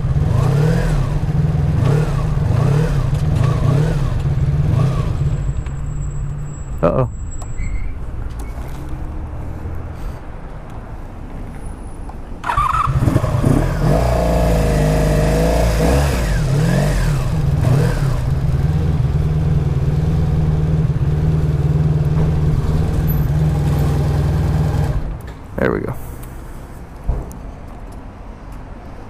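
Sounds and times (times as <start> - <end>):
motorcycle engine running: 12.9 - 25.0.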